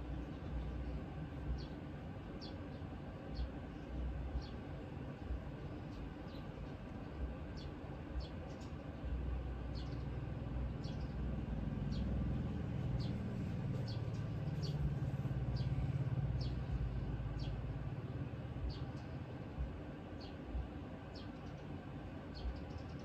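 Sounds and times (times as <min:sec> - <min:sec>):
low engine hum: 0:00.0 - 0:23.0
small bird chirping: 0:07.5 - 0:19.3.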